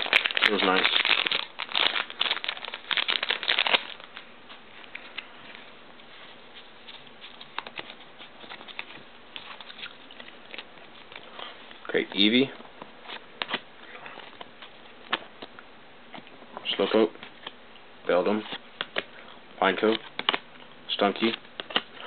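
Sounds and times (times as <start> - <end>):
foil wrapper crinkling and tearing: 0.0 - 4.2
cards rustling: 0.0 - 5.3, 6.3 - 11.6, 21.0 - 22.0.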